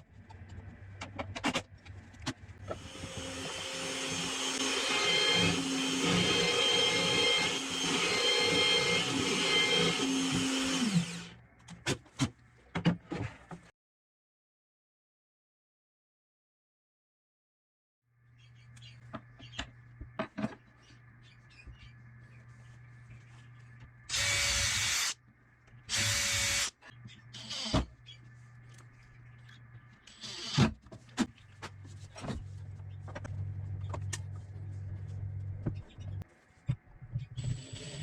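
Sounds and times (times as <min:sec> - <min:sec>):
power drill running: 0:02.7 - 0:11.4, 0:24.1 - 0:25.2, 0:25.9 - 0:26.8
low motor hum: 0:32.3 - 0:36.2.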